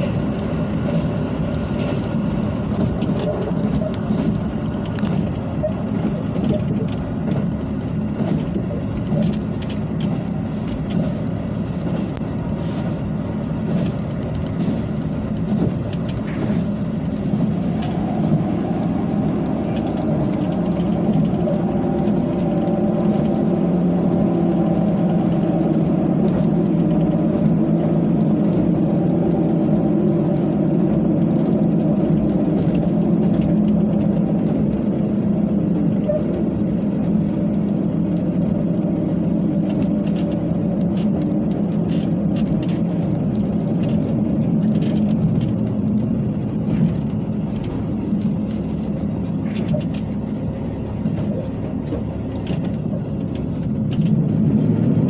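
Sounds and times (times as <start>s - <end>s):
diesel engine drone: 0.0s - 55.0s
railcar rumbling on track: 0.0s - 55.0s
clicks and rattles: 39.6s - 46.0s, 46.6s - 55.0s.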